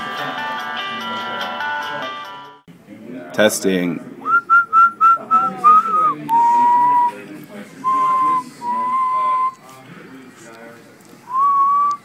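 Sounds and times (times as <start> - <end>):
person whistling: 4.3 - 7.2, 7.8 - 9.6, 11.3 - 12.0.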